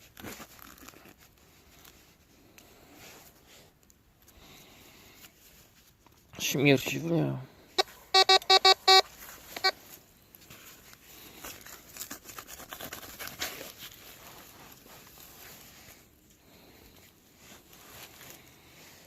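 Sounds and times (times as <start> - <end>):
metal detector beep: 7.8 - 9.8
faint crackling and scratching: 9.1 - 19.0.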